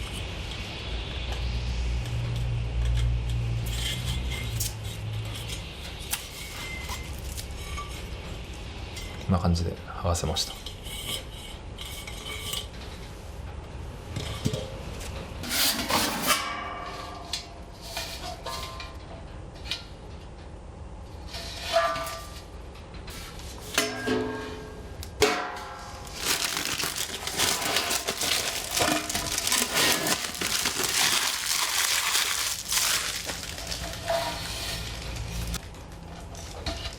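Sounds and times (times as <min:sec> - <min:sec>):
plastic film peeling: 0:26.0 - 0:35.6.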